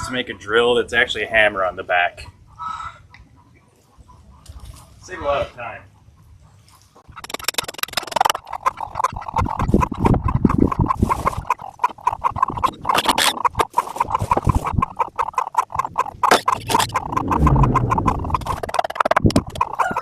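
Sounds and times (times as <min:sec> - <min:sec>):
chickens clucking: 0:00.0 - 0:20.0
sharp knocks and clatter: 0:07.0 - 0:20.0.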